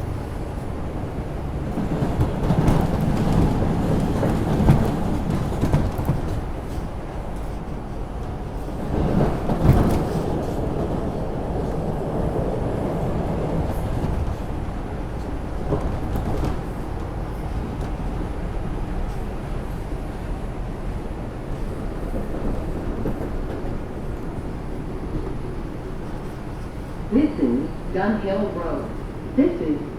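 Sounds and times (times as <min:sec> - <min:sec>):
train clatter: 0:00.0 - 0:29.2
wheels rumbling on rail: 0:00.0 - 0:29.9.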